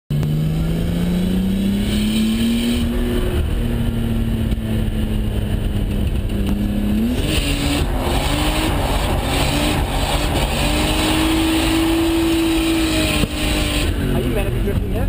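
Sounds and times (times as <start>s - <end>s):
car engine revving: 0.1s - 15.0s.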